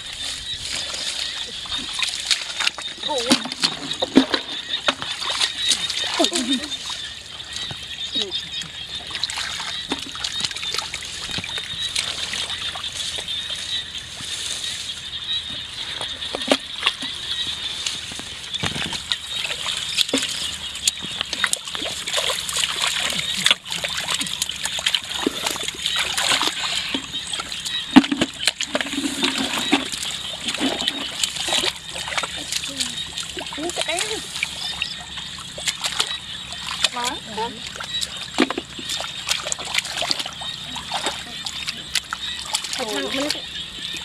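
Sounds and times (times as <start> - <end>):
shallow water splashing: 0.0 - 44.0.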